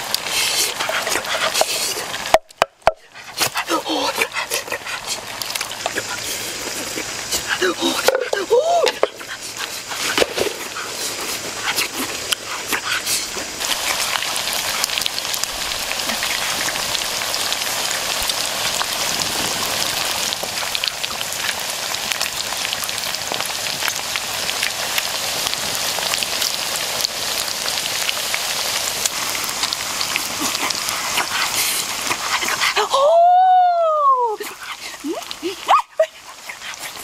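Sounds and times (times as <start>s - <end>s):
meat sizzling in a wok: 0.0s - 37.0s.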